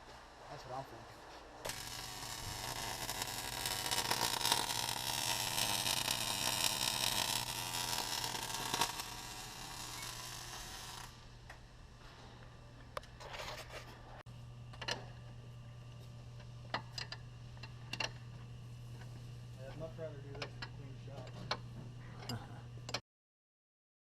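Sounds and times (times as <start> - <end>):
low electrical hum: 0.0 - 23.0
welding arc crackling and hissing: 1.6 - 11.5.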